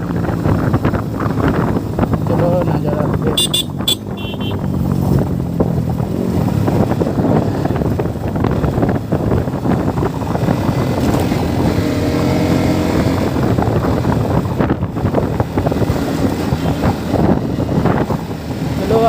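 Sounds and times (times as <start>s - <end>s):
motorcycle engine: 0.0s - 19.0s
wind buffeting microphone: 0.0s - 19.0s.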